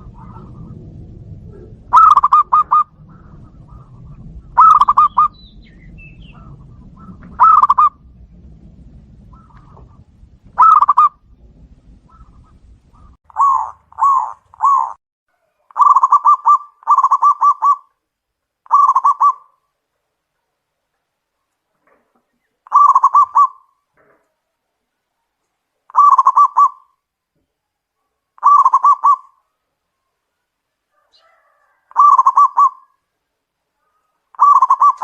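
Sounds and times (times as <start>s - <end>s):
dove cooing: 0.0s - 8.0s, 9.2s - 11.2s, 12.0s - 17.9s, 18.7s - 19.5s, 22.6s - 23.7s, 25.9s - 26.9s, 28.4s - 29.4s, 31.0s - 33.0s, 33.8s - 35.0s.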